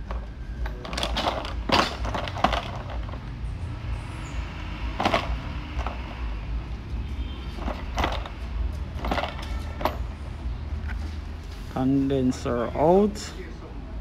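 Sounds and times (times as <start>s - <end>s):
metal parts knocking and clunking: 0.0s - 3.4s, 5.0s - 6.2s, 7.6s - 10.2s.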